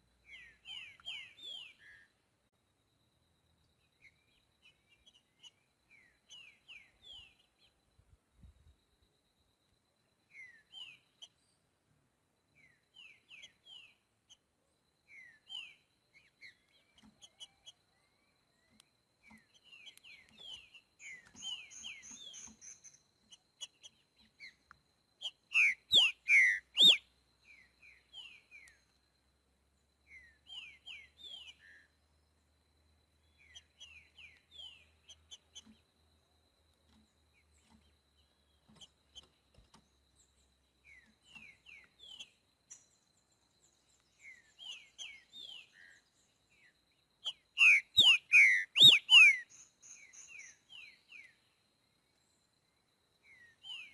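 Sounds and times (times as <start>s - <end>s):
bird singing whistled notes: 0.2s - 2.1s, 3.9s - 7.9s, 10.3s - 11.4s, 12.5s - 14.0s, 15.0s - 24.6s, 25.2s - 28.9s, 30.0s - 31.9s, 33.2s - 35.7s, 40.8s - 51.5s, 53.2s - 53.9s.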